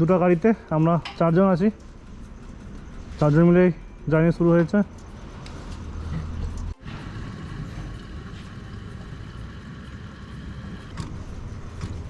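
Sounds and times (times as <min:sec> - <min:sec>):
fuel dispenser whining hum: 0:05.5 - 0:12.0.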